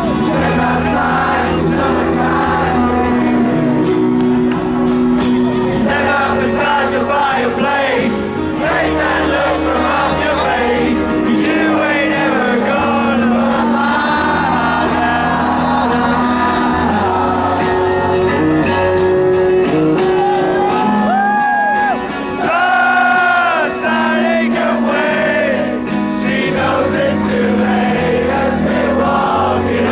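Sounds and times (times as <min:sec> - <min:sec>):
person singing: 0:00.0 - 0:19.0
live band music: 0:00.0 - 0:29.8
crowd shouting and whooping: 0:00.0 - 0:29.9.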